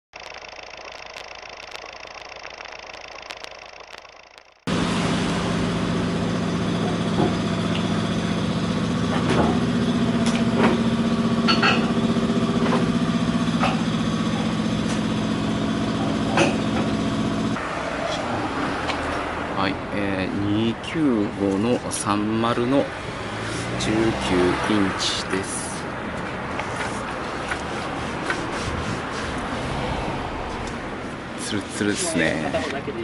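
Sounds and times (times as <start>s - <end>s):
engine idling: 0.2s - 17.6s.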